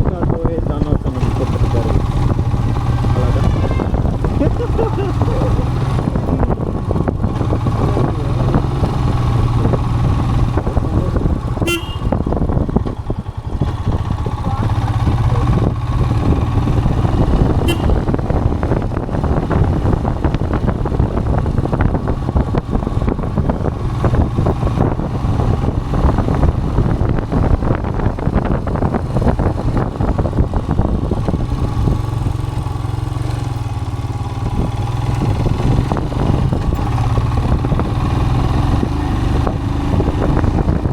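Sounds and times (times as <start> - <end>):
motorcycle engine running: 0.0 - 40.9
road and wind noise: 0.0 - 40.9
vehicle horn toots: 3.0 - 4.2, 11.6 - 12.4, 17.5 - 18.3.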